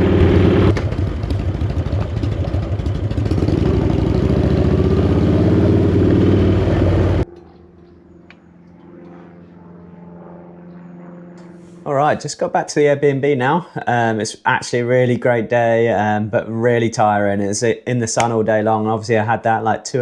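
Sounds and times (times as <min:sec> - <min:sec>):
motorcycle engine running loudly: 0:00.0 - 0:07.2.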